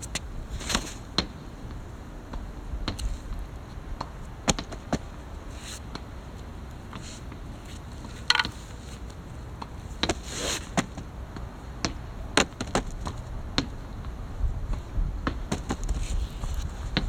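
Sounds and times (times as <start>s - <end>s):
sharp taps and knocks: 8.3s - 8.6s.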